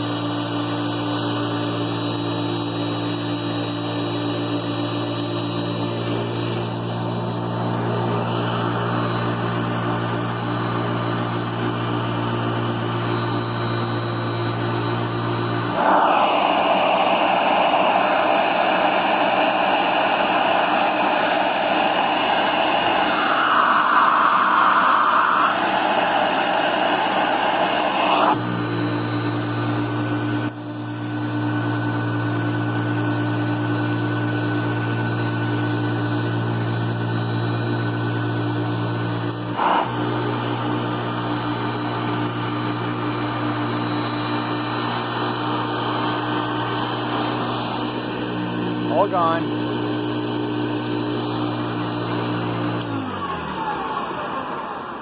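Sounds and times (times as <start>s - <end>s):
vacuum cleaner motor hum: 0.0s - 55.0s
vacuum sucking rush of air: 4.2s - 30.6s, 38.9s - 52.8s.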